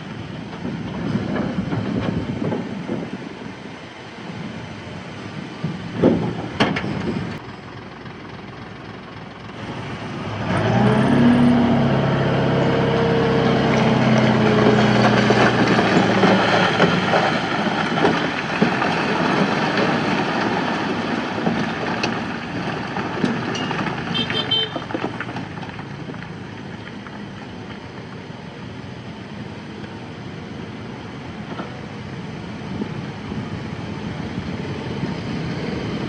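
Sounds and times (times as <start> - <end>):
heavy diesel engine revving: 9.5 - 23.4.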